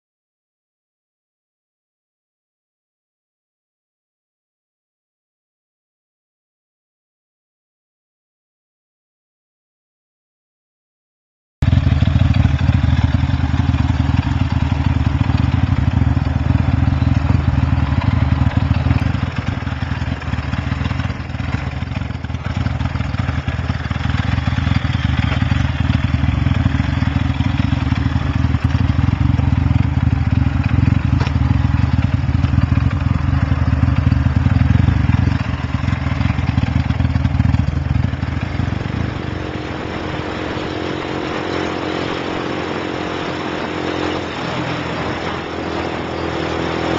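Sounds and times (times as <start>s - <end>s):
motorcycle engine running: 11.6s - 46.9s.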